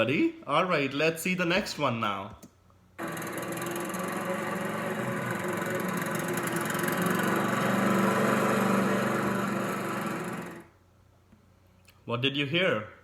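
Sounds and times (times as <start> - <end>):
lawnmower engine running: 3.0 - 10.7.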